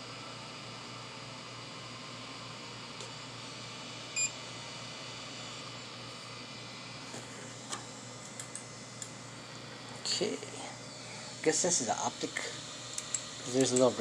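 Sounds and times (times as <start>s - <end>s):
fans hissing: 2.3s - 14.0s
printer buzzer beep: 4.2s - 4.4s
small click: 13.0s - 13.9s.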